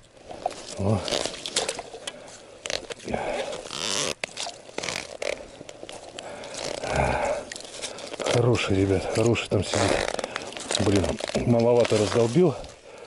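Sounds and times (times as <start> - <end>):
clothing rustle: 0.0 - 12.8
fishing line scraping ice: 0.3 - 12.7
low grunt: 6.7 - 7.5.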